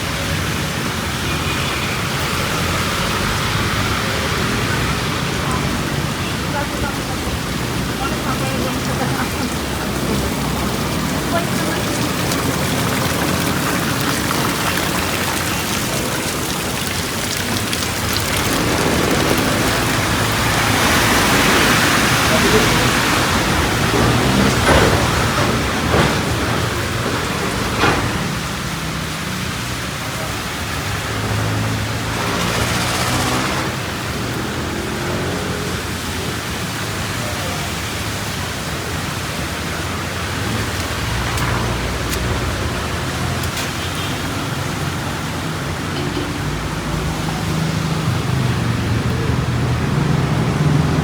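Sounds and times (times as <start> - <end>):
vehicle engine humming: 0.0 - 37.6
heavy rain hissing: 0.0 - 51.0
raindrops ticking close by: 0.0 - 51.0.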